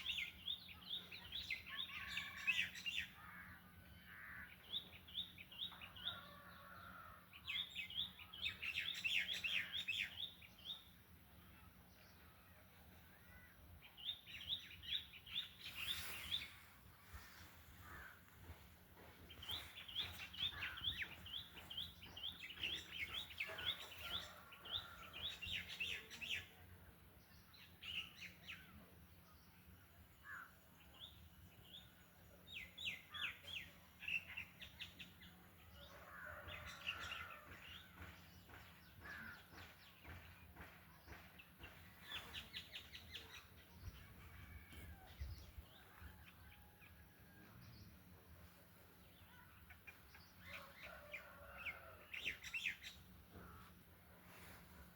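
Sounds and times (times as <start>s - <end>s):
harsh bird chatter: 19.4s - 26.0s.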